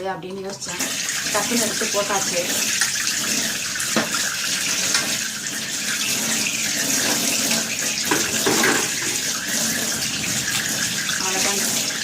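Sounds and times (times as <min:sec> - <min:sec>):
tap water running into sink: 0:00.2 - 0:12.0
clatter of shelves and trays: 0:08.1 - 0:09.2.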